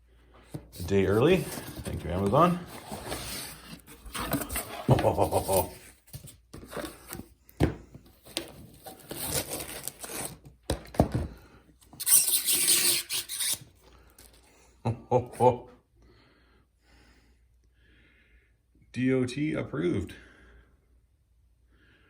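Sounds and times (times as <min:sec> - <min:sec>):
package scraping and rustling: 0:00.5 - 0:14.4
packaging crinkling or tearing: 0:08.9 - 0:10.5.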